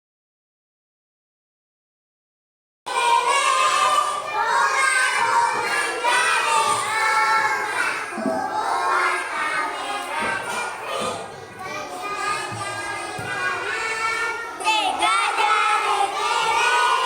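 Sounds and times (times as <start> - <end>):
children talking and singing: 2.9 - 17.0.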